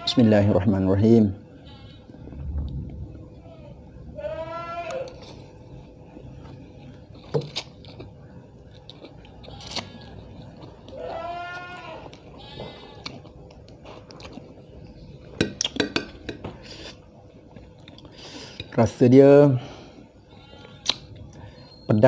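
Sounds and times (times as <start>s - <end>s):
animal bleating: 1.6s - 2.0s, 3.5s - 5.2s, 10.9s - 13.2s, 20.3s - 21.0s.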